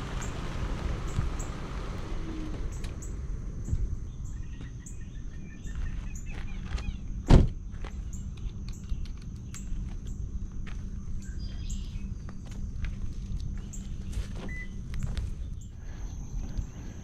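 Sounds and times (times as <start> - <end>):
small birds chirping: 0.0 - 7.1, 10.9 - 12.3
steady low rumble: 0.0 - 17.0.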